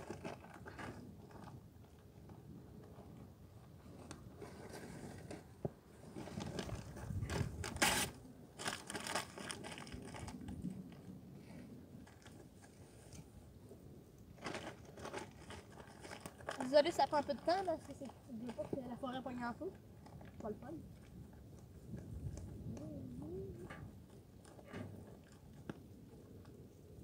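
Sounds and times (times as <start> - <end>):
crunching crinkling handling noises: 0.0 - 3.0, 3.8 - 11.2, 14.2 - 22.8.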